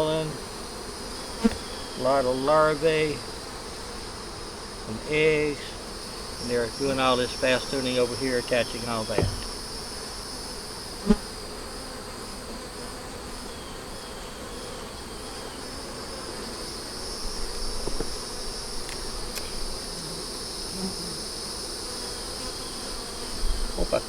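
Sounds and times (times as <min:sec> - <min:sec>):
honey bees buzzing: 0:00.0 - 0:24.0
knocks of hive frames: 0:04.8 - 0:10.2, 0:16.1 - 0:21.7
high-pitched insect drone: 0:04.9 - 0:11.4.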